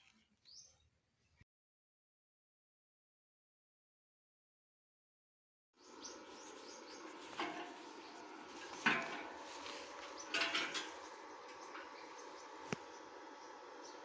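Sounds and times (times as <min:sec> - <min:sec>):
steady background hiss: 0:05.8 - 0:14.0
clattering metal knocks: 0:08.8 - 0:09.4, 0:10.2 - 0:11.0.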